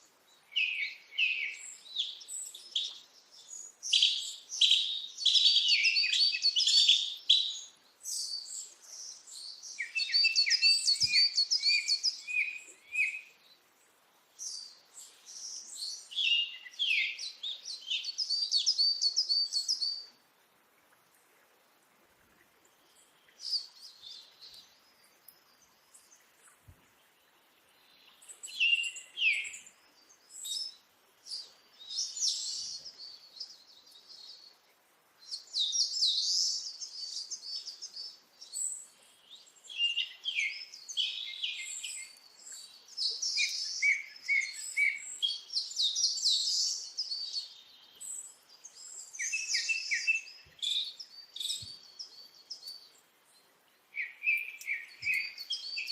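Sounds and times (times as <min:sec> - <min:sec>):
birds chirping and singing: 0:00.6 - 0:13.4, 0:35.3 - 0:53.0, 0:54.0 - 0:55.9.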